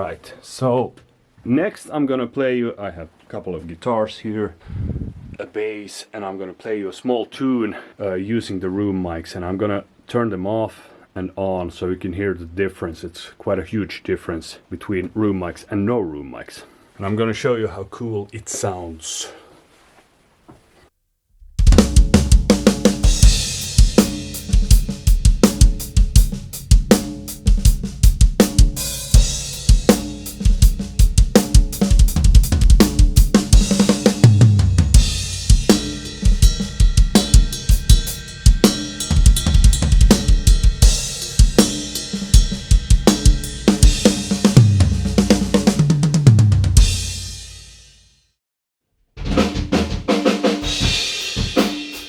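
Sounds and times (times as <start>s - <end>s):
drum kit playing a groove: 21.6s - 48.0s, 49.2s - 52.0s.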